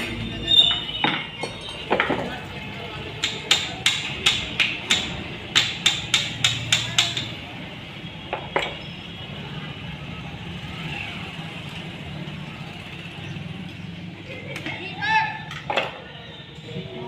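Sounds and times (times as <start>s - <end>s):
hammer tapping on metal: 3.2s - 7.4s.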